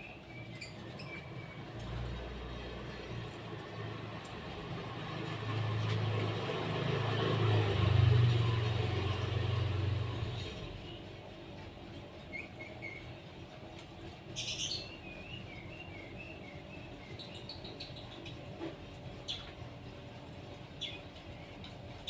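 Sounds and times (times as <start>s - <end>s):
small birds chirping: 0.0s - 3.5s, 12.2s - 13.2s, 14.3s - 22.0s
motor vehicle passing by: 1.4s - 10.9s.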